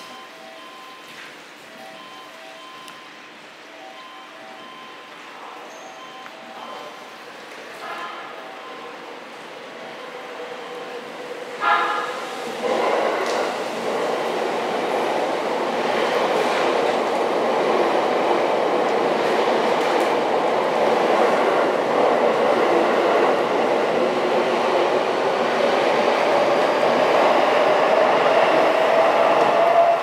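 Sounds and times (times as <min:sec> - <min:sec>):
train wheels rolling on rail: 0:09.3 - 0:30.0.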